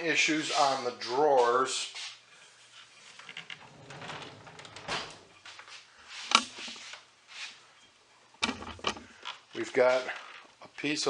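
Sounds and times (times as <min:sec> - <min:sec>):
rubbing and scraping on wooden furniture: 0:01.9 - 0:07.6.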